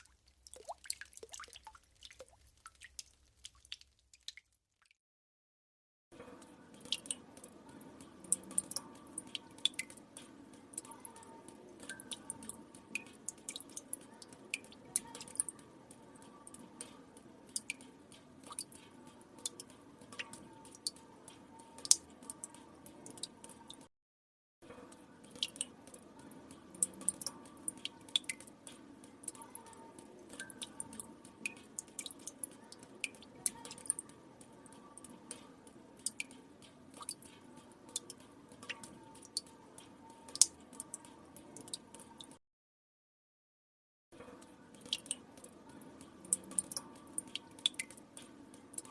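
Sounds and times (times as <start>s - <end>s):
water drops dripping into water: 0.0s - 5.0s, 6.2s - 23.9s, 24.9s - 42.4s, 44.2s - 48.9s.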